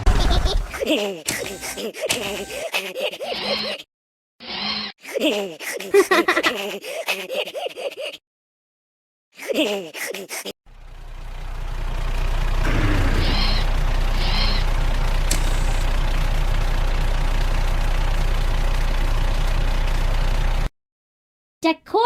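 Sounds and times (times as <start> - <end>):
truck engine running: 0.0 - 0.8, 10.7 - 20.7.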